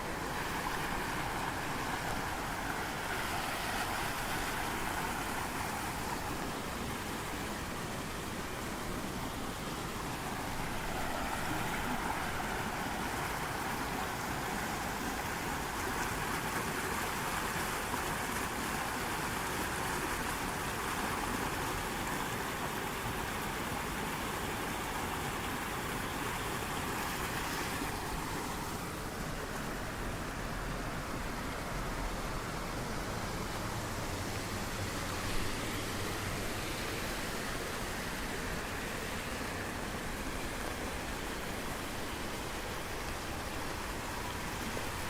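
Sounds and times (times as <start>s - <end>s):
running water rushing: 0.0s - 45.0s.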